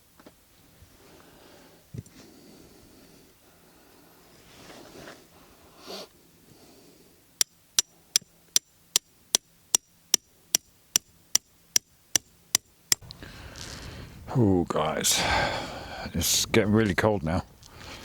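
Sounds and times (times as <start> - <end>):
faint rustling: 3.8 - 6.6
sharp evenly spaced clicks: 7.4 - 13.1.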